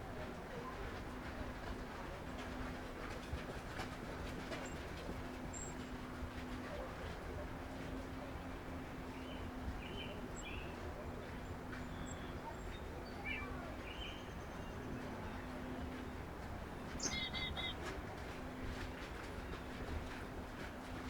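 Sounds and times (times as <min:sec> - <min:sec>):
wild birds calling: 0:17.0 - 0:17.8.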